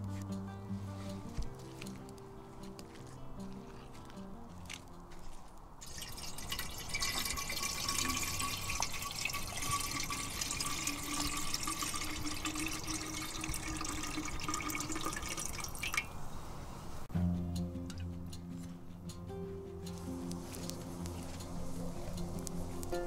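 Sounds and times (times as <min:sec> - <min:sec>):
water pouring into container: 0:05.8 - 0:16.1.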